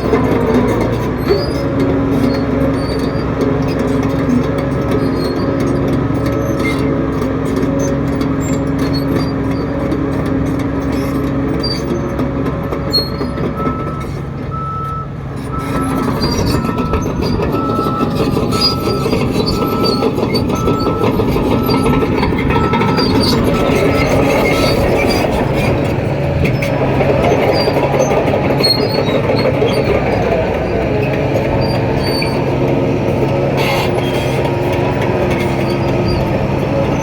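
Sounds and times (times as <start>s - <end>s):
diesel engine running: 0.0s - 37.0s
back-up alarm beeping: 13.6s - 16.0s, 16.6s - 24.2s.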